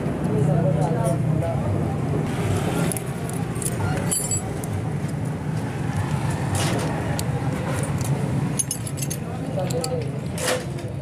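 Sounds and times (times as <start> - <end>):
low hum of motor vehicles: 0.0 - 11.0
metallic clinks of tools: 3.6 - 4.5.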